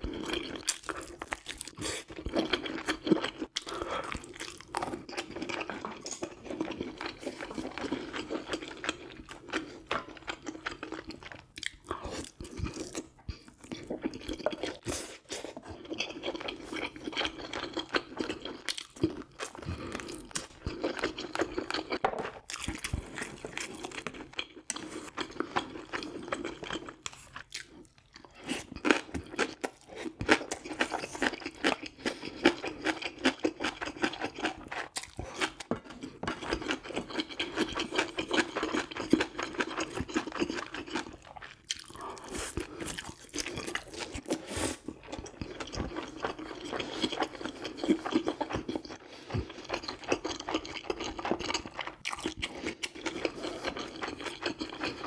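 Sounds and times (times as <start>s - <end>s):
person chewing and crunching food: 0.0s - 55.0s.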